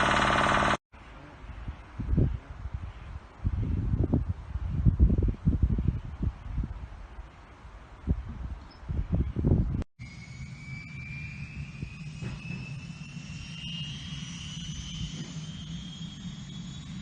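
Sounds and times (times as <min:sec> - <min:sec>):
helicopter rotor rumble: 0:00.0 - 0:00.8
turbine whine: 0:00.0 - 0:00.8, 0:10.0 - 0:17.0.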